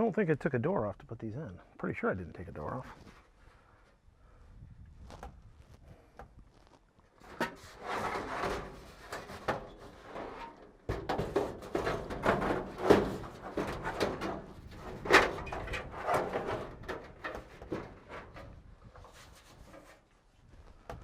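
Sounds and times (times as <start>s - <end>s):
metal parts clattering and scraping: 7.2s - 18.6s.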